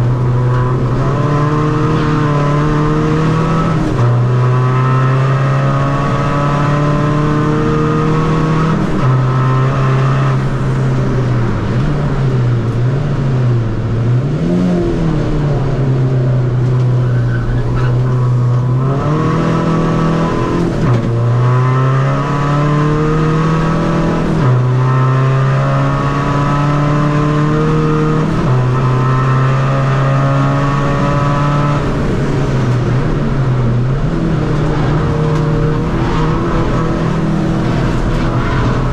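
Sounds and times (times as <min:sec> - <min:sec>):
diesel car engine revving: 0:00.0 - 0:38.9.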